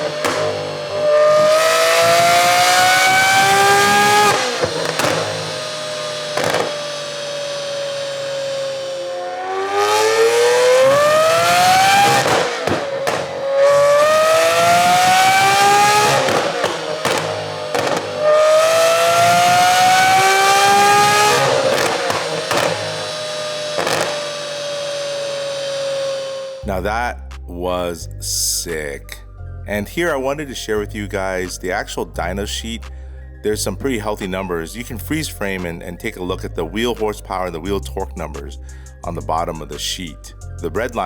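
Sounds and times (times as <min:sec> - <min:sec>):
sports car engine revving: 0:00.0 - 0:27.4
exhaust cracks: 0:00.0 - 0:28.0.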